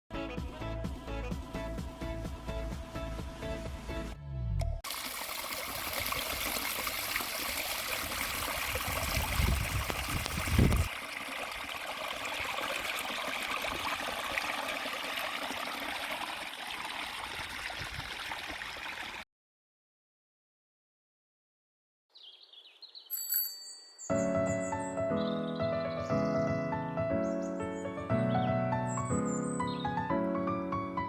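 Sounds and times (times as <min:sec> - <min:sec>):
stream running over rocks: 0:04.8 - 0:19.2.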